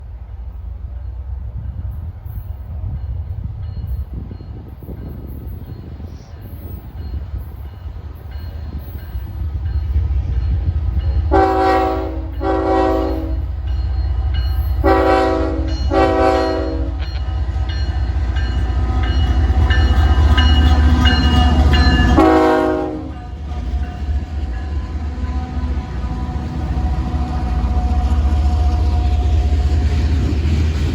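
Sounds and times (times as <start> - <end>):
diesel locomotive rumble: 0.0 - 30.9
locomotive air horn blasts: 11.3 - 13.5, 14.8 - 17.3, 22.1 - 23.2.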